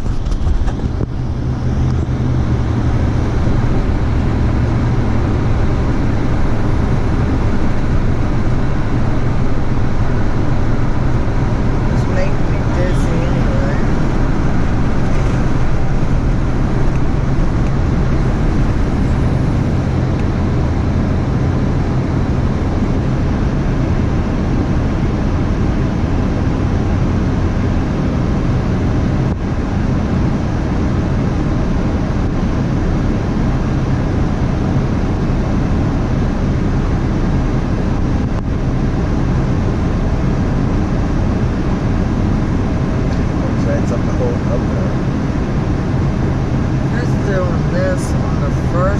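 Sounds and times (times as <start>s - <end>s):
rushing noise: 0.0s - 26.7s
engine running steadily: 0.0s - 48.9s.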